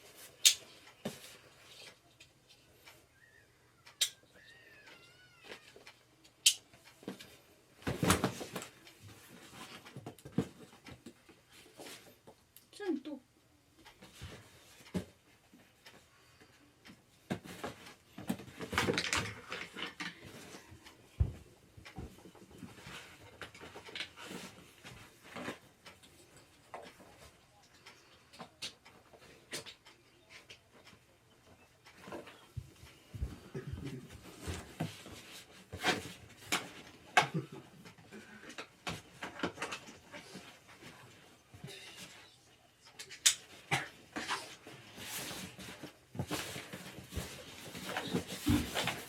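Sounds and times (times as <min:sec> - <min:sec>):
chair parts clicking and creaking: 0:00.0 - 0:12.4, 0:13.8 - 0:49.0
objects being handled: 0:42.9 - 0:49.0.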